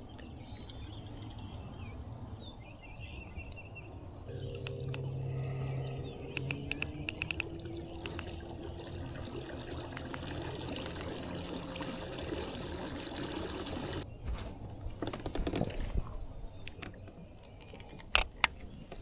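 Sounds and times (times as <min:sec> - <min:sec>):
water trickling and splashing: 0:04.4 - 0:14.1.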